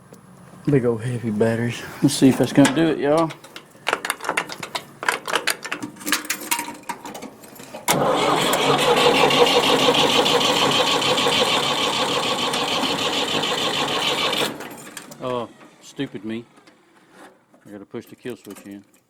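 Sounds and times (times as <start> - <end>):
tractor starter cranking engine: 7.1 - 17.4.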